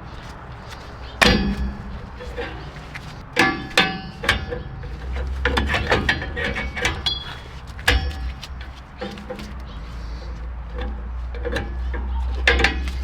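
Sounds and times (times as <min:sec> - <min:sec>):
metal tools clinking and knocking: 0:01.2 - 0:09.7.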